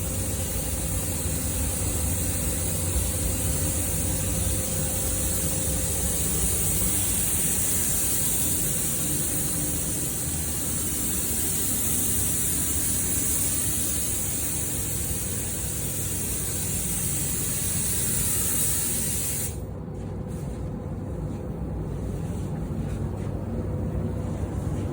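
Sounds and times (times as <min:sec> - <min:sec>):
paint spray gun hissing: 0:00.0 - 0:19.6
low steady rumble: 0:19.6 - 0:24.9.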